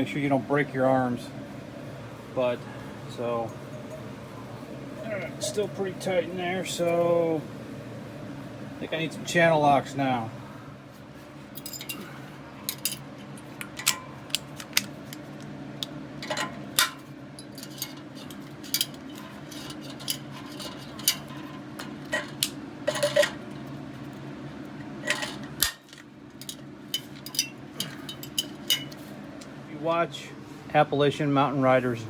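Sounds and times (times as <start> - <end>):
steady low hum: 0.0 - 32.0
hand tools clinking on metal: 11.6 - 13.1, 16.2 - 23.4, 25.0 - 29.0.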